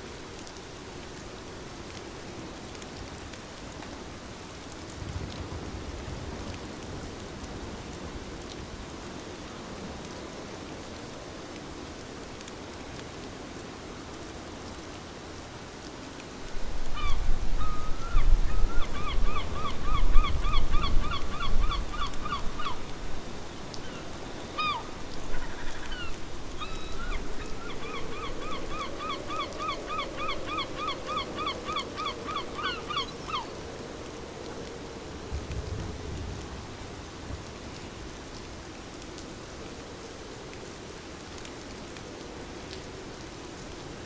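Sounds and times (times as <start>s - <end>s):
rain hiss: 0.0s - 44.0s
bird calling rising notes: 23.8s - 33.5s.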